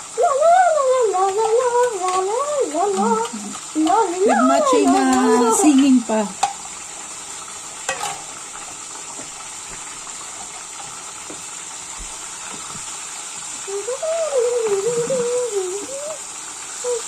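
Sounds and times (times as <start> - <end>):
tap water running into sink: 0.0 - 17.0
child singing: 0.2 - 6.0, 13.7 - 16.2
dish clink: 7.9 - 8.3.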